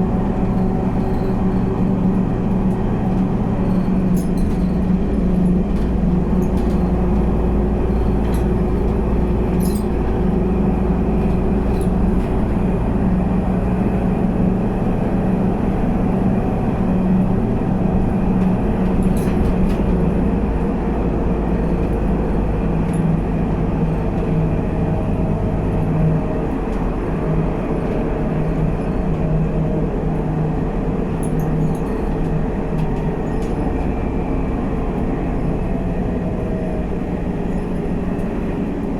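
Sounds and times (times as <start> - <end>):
bus engine rumble: 0.0 - 38.9.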